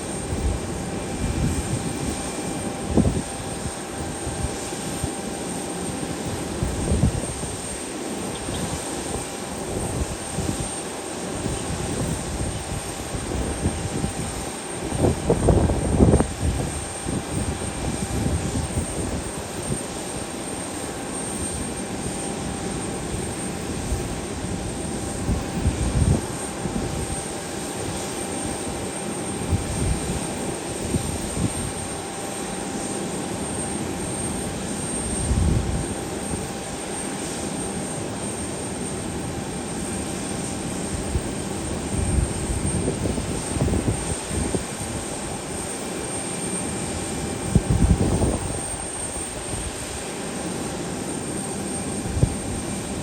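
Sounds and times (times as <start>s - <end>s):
airliner engines running: 0.0s - 53.0s
wind buffeting microphone: 0.2s - 5.1s, 6.3s - 7.7s, 11.4s - 19.9s, 23.7s - 28.1s, 35.2s - 36.5s, 40.9s - 45.1s, 47.1s - 49.9s.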